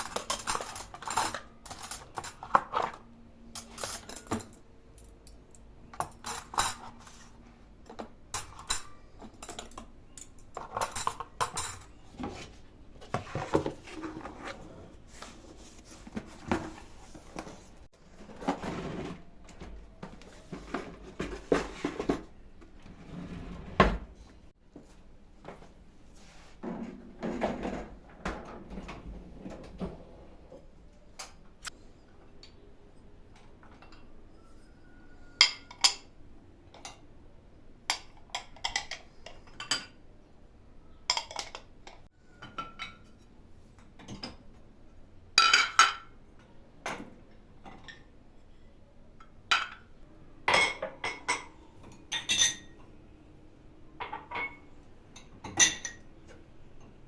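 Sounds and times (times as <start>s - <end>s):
dishes and cutlery clinking: 0.0s - 3.0s, 3.6s - 14.2s, 33.4s - 37.1s, 41.1s - 43.3s, 45.4s - 46.2s, 50.5s - 52.9s, 54.0s - 56.9s.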